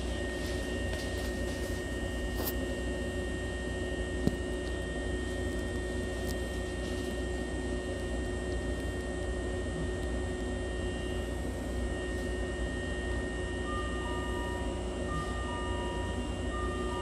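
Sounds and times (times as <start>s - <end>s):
steady whining tones: 0.0s - 17.0s
train equipment hum and hiss: 0.0s - 17.0s
two-note electronic tone: 11.9s - 17.0s.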